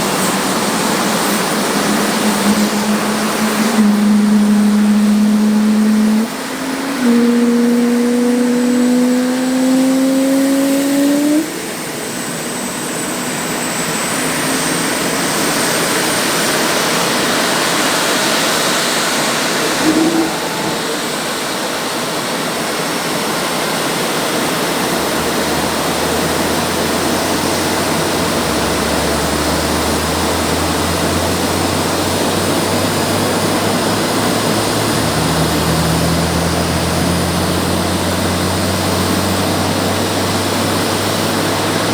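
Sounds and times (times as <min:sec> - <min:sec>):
rising jet whine: 0:00.0 - 0:22.3
jet engines rushing: 0:00.0 - 0:41.9.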